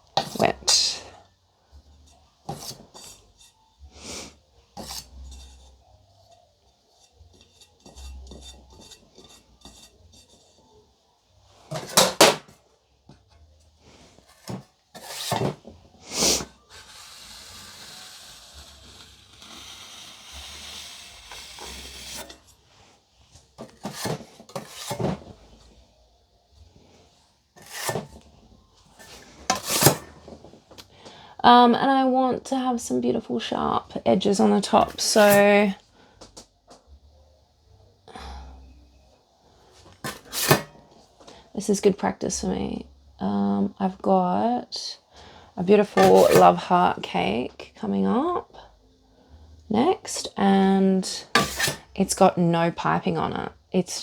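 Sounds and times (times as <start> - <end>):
steady scraping of buttercream: 1.7 - 12.2, 13.7 - 25.8, 26.8 - 30.6, 34.3 - 35.8, 40.0 - 40.8, 45.8 - 47.2, 51.2 - 52.2.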